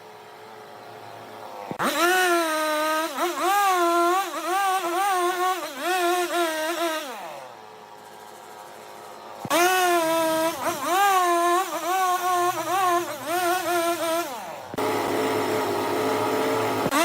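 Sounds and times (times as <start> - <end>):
rough noisy machine: 0.0 - 17.0
wood lathe whining: 9.4 - 17.0.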